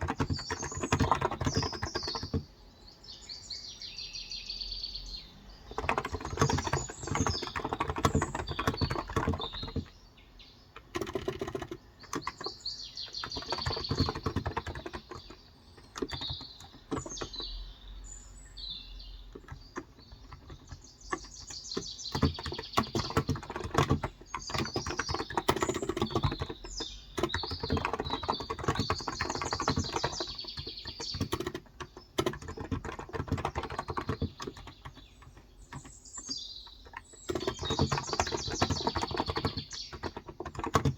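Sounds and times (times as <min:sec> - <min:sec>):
typing on keyboard: 0:00.0 - 0:02.5, 0:05.6 - 0:10.0, 0:10.8 - 0:17.6, 0:19.3 - 0:40.9
small birds chirping: 0:00.0 - 0:40.9.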